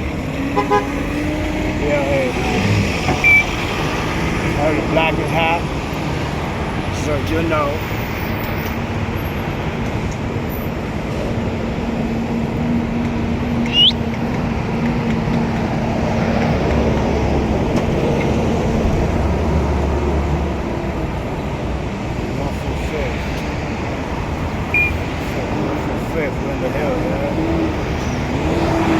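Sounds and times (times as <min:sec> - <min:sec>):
vehicle engines running: 0:00.0 - 0:28.9
high rising whistle: 0:13.6 - 0:14.0.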